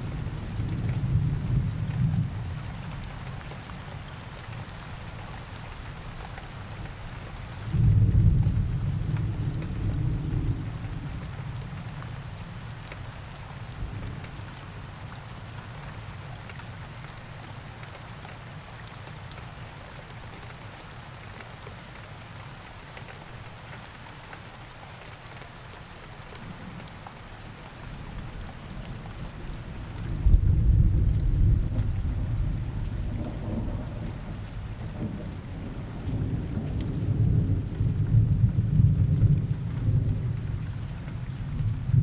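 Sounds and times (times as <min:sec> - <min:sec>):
rain falling: 0:00.0 - 0:42.0
thunder rumbling: 0:28.9 - 0:40.6.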